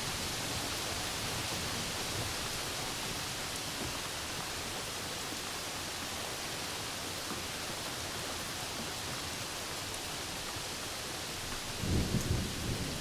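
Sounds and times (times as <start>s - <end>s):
steady rain falling: 0.0s - 13.0s
low rumble of thunder: 11.6s - 13.0s.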